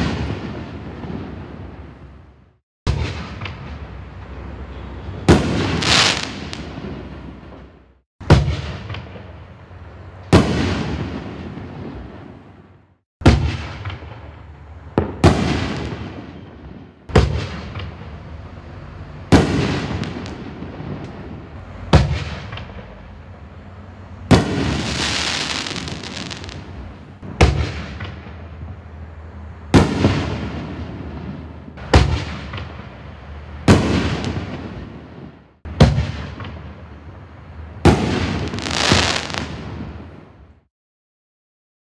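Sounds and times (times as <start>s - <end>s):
firework bangs with rumbling echo: 0.0s - 2.1s, 2.9s - 4.0s, 5.2s - 9.6s, 10.3s - 18.3s, 19.3s - 23.0s, 24.3s - 28.8s, 29.7s - 33.0s, 33.6s - 36.9s, 37.8s - 40.4s.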